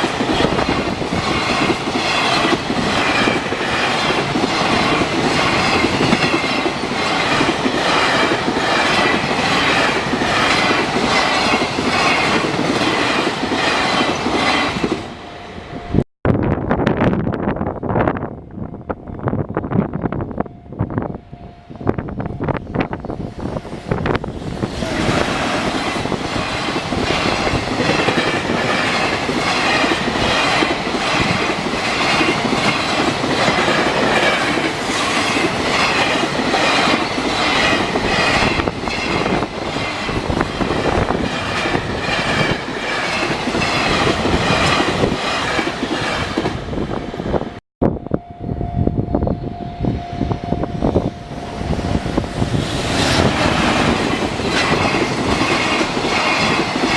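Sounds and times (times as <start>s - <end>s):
train wheels clattering over rails: 0.0s - 15.1s, 24.2s - 47.2s, 51.9s - 56.9s
steady tone: 47.8s - 56.9s.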